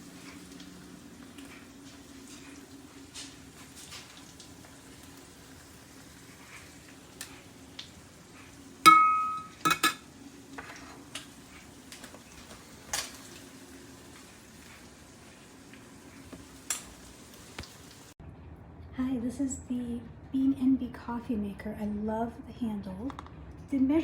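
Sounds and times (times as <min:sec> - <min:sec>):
faint steady hum: 0:00.0 - 0:24.0
ringing clink of metal or glass: 0:08.9 - 0:09.9
kitchenware knocks and clicks: 0:08.9 - 0:10.0.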